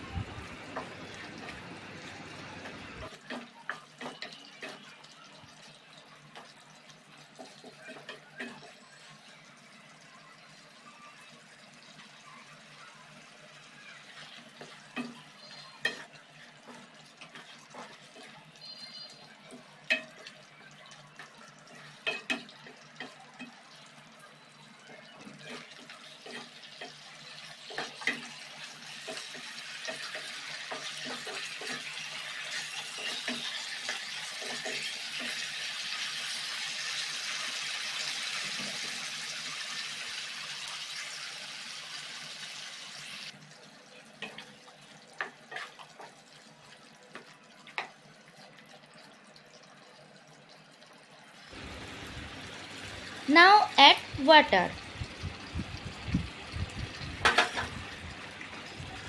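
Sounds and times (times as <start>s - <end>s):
metal utensils clinking on a pan: 3.0s - 5.2s, 6.3s - 9.1s, 14.1s - 24.0s, 24.9s - 35.6s, 44.1s - 46.2s, 57.2s - 57.7s.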